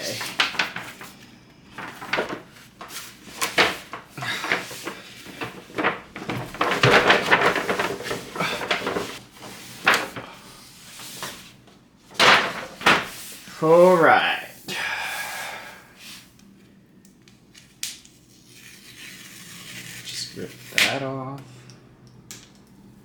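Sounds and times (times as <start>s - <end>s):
packaging rubbing and scraping: 0.0s - 14.0s
packaging rustling: 0.0s - 14.0s.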